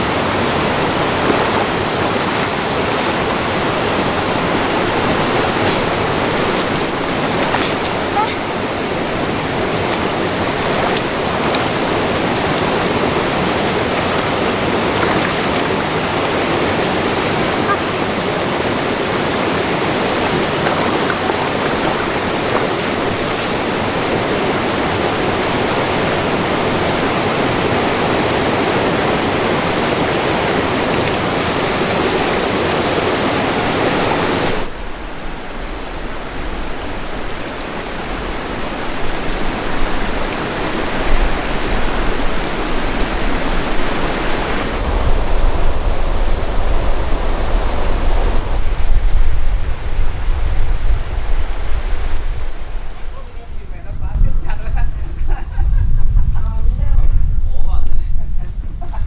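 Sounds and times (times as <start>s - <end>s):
mountain stream rushing: 0.0s - 53.7s
uneven low rumble: 44.8s - 59.0s.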